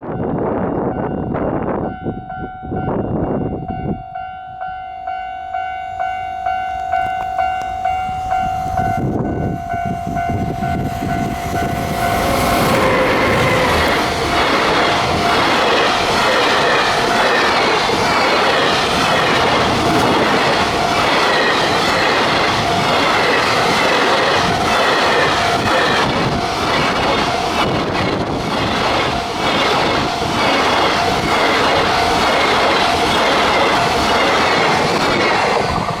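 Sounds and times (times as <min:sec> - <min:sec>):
train wheels clattering over rail joints: 0:10.9 - 0:36.0.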